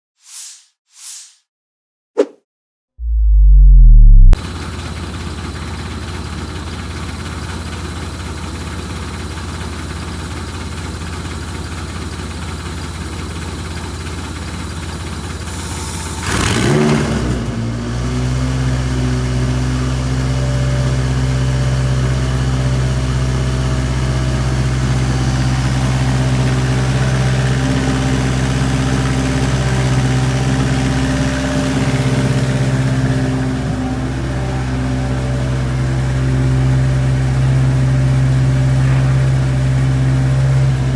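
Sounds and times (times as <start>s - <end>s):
steady low hum: 3.0s - 4.4s
engine idling: 3.1s - 15.4s.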